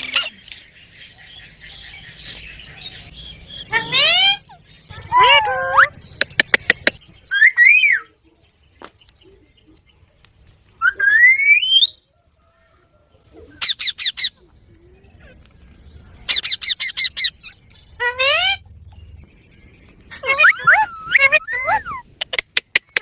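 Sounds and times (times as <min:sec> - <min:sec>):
parakeet calling: 0:03.6 - 0:07.9.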